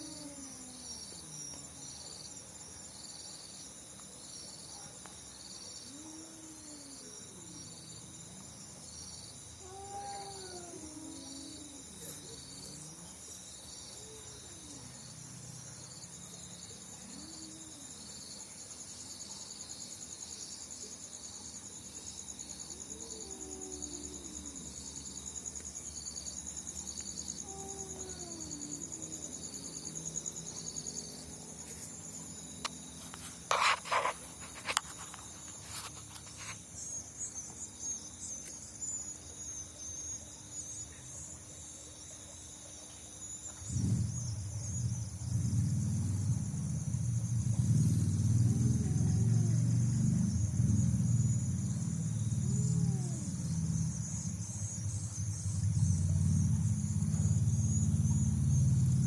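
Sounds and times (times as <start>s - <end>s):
crickets trilling: 0.0s - 59.0s
regular insect chirp: 0.0s - 59.0s
faint low wavering calls: 9.0s - 18.6s, 22.4s - 38.2s, 43.5s - 59.0s.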